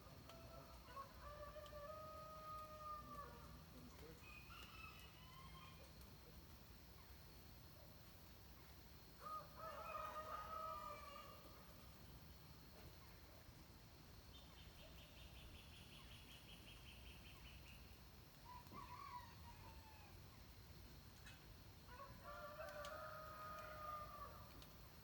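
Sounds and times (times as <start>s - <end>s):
distant rooster crowing: 9.2s - 11.6s, 18.5s - 20.2s, 21.9s - 24.6s
bird chirping: 14.3s - 18.0s.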